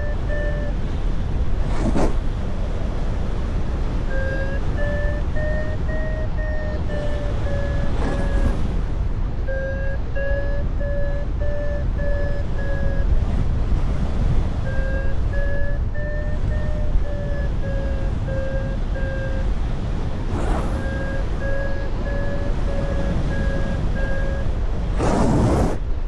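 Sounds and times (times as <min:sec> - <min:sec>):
variometer beeping: 0:00.0 - 0:00.8, 0:04.0 - 0:08.6, 0:09.5 - 0:13.4, 0:14.6 - 0:24.6
wind buffeting microphone: 0:00.0 - 0:26.0.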